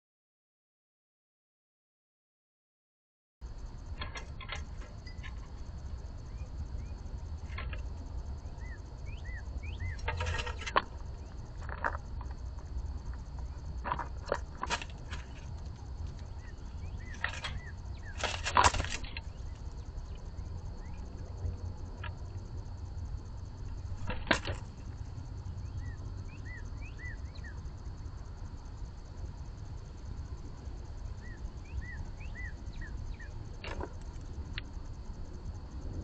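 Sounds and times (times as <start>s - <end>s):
faint high whine: 3.4s - 36.0s
low hum: 3.4s - 36.0s
birds chirping: 4.0s - 11.8s, 15.0s - 21.2s, 23.7s - 27.7s, 31.2s - 33.4s.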